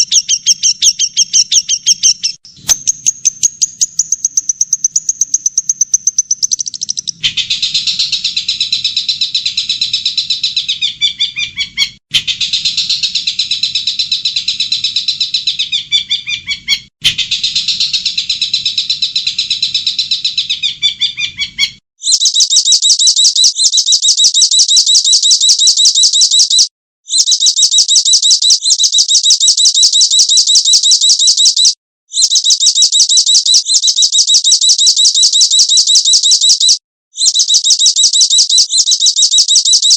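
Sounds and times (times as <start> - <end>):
songbird warbling song: 0.0 - 12.0
fast high-pitched bird trill: 0.0 - 39.9.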